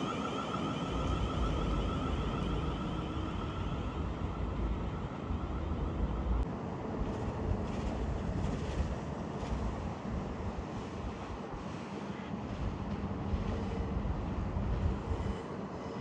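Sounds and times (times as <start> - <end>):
wavering high tone: 0.0 - 6.2
train rumbling past: 0.0 - 8.7.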